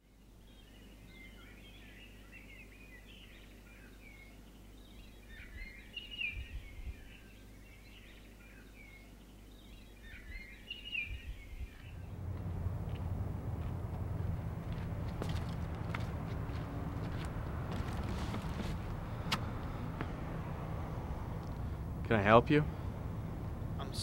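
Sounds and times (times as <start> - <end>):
small birds chirping: 0.2 - 24.0
low rumble: 11.1 - 24.0.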